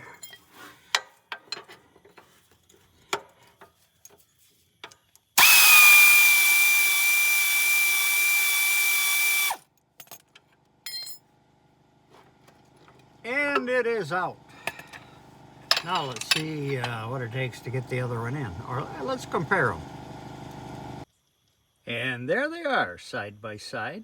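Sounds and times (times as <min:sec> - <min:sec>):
pneumatic air tool whining: 0:05.4 - 0:09.6
tools clinking on metal: 0:10.0 - 0:11.2, 0:15.7 - 0:17.2.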